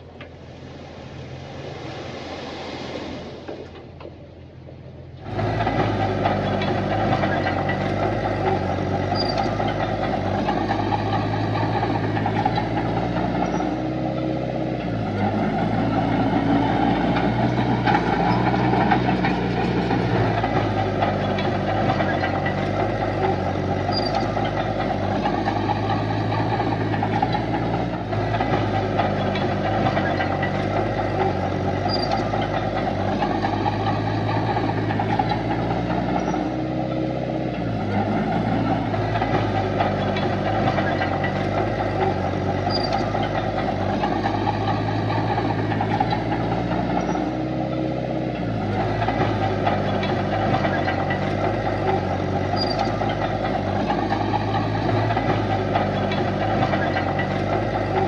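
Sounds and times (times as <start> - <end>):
heavy machinery diesel engine: 0.0 - 58.0.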